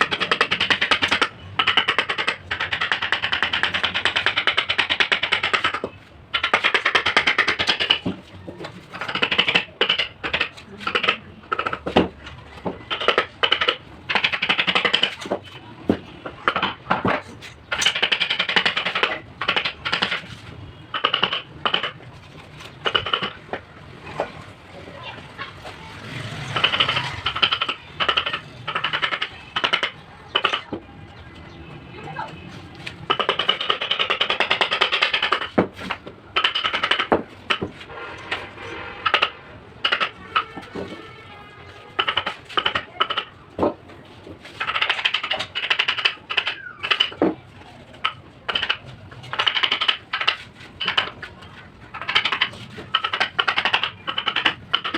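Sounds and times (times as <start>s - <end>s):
mallet tapping chisel into wood: 0.0s - 8.2s, 8.9s - 15.4s, 16.2s - 20.3s, 20.9s - 22.0s, 26.6s - 30.8s, 33.0s - 37.7s, 51.9s - 54.9s.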